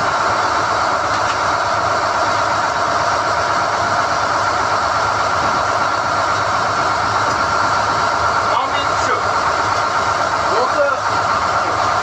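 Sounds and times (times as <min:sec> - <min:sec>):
drilling rig running: 0:00.0 - 0:12.0.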